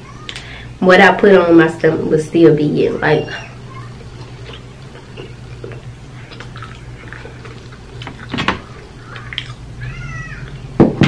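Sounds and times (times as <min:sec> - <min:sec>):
steady low hum: 0:00.0 - 0:10.8
person chewing: 0:03.5 - 0:10.6.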